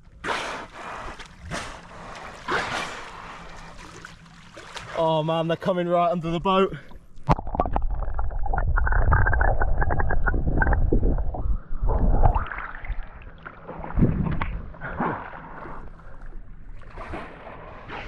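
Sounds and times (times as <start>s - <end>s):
water splashing against hull: 0.0s - 5.7s, 6.4s - 18.0s
heavy low rumble: 6.2s - 18.0s
wind on microphone: 8.2s - 13.2s, 13.8s - 14.6s.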